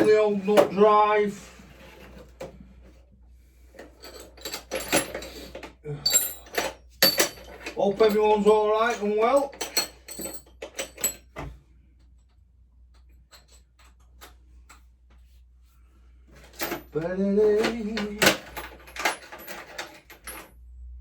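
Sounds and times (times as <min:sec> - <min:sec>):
wordless voice sound: 0:00.0 - 0:01.7
metal tools clinking: 0:03.8 - 0:11.4, 0:16.4 - 0:20.5.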